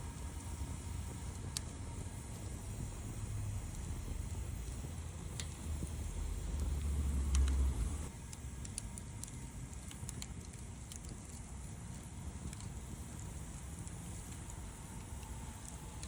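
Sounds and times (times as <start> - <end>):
low rumble: 0.0 - 8.1
wood fire crackling: 0.0 - 16.0.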